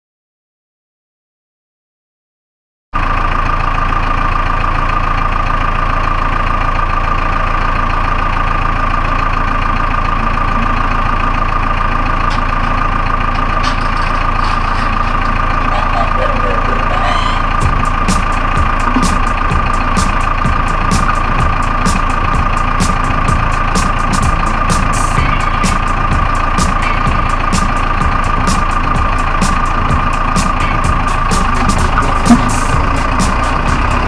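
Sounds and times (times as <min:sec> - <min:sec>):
tractor engine running: 0:03.0 - 0:34.0
high-pitched whine: 0:09.9 - 0:34.0.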